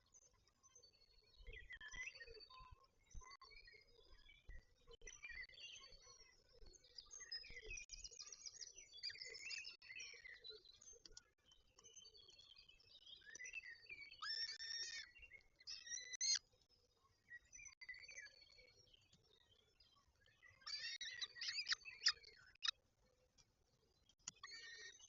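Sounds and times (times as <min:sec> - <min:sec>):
faint birdsong: 0:00.0 - 0:25.0.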